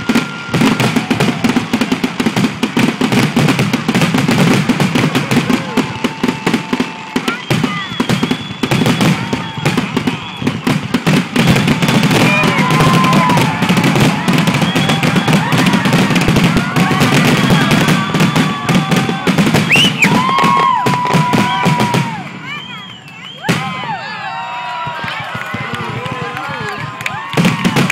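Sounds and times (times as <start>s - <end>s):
fireworks bursting: 0.0s - 27.9s
fireworks crackling: 0.0s - 27.9s
fireworks whistling: 0.0s - 27.9s.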